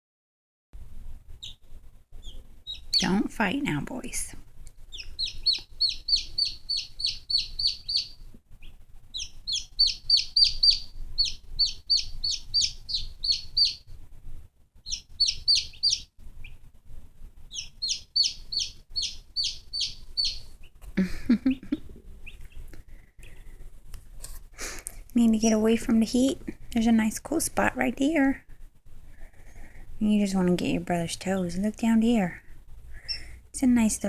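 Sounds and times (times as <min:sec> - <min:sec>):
baby chicks peeping: 0:01.4 - 0:14.0, 0:14.8 - 0:16.7, 0:17.4 - 0:23.6, 0:25.2 - 0:26.7, 0:32.9 - 0:33.9.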